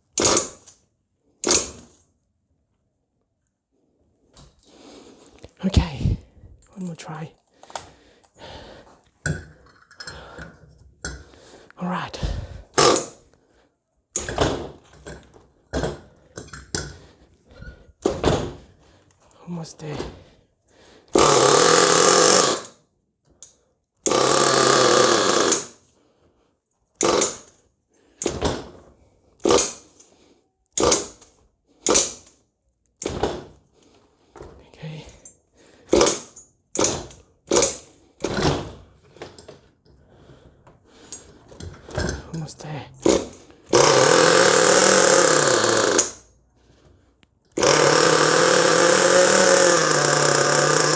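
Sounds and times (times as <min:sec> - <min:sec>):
small engine cranking and sputtering: 0:00.2 - 0:00.8, 0:12.6 - 0:13.2, 0:21.1 - 0:22.8, 0:24.0 - 0:25.8, 0:27.0 - 0:27.5, 0:42.2 - 0:46.3, 0:47.5 - 0:50.9
engine starter cranking: 0:43.0 - 0:46.2.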